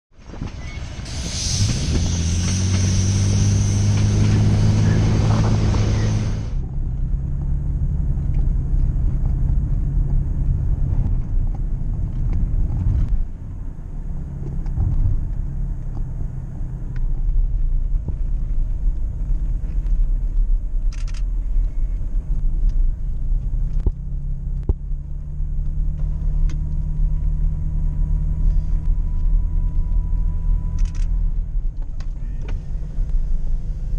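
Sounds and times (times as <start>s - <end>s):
vehicle engine drone and road rumble: 0.1s - 33.9s
bright rushing noise: 0.5s - 6.6s.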